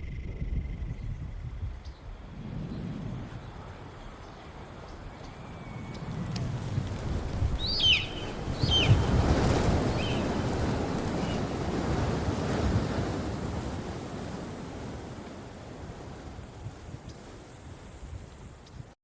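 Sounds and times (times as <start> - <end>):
rushing surf-like noise: 2.2 - 18.6
short chirping calls: 7.6 - 9.2, 9.9 - 10.3.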